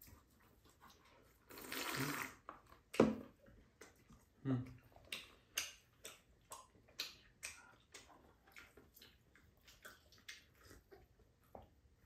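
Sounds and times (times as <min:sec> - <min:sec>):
chewing and lip-smacking: 0:00.0 - 0:12.0.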